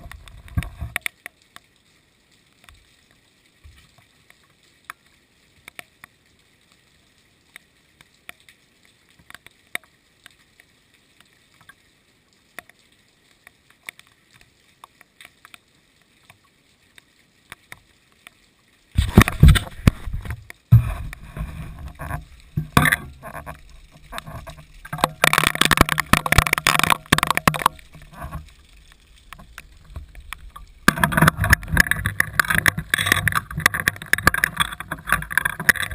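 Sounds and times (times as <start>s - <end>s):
raindrops ticking: 0.0s - 35.9s
heavy rain rumble and hiss: 18.8s - 35.9s.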